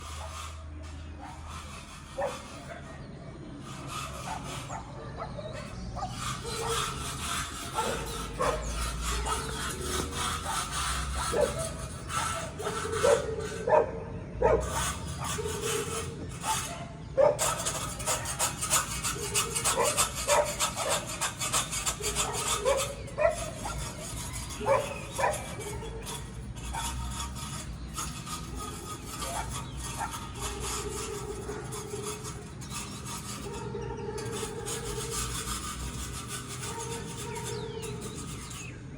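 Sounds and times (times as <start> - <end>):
dog barking: 2.2 - 3.0, 7.7 - 9.5, 11.3 - 15.6, 16.4 - 17.6, 19.2 - 21.1, 22.0 - 23.8, 24.6 - 26.0, 36.6 - 37.8.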